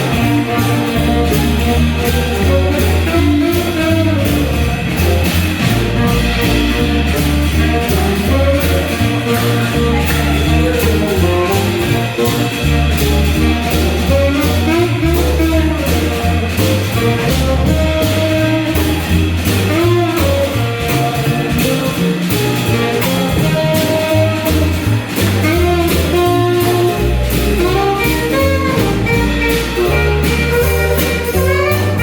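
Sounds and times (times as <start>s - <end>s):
guitar: 0.0s - 15.0s
stepping bass line: 0.0s - 32.0s
swing jazz band playing: 0.0s - 32.0s.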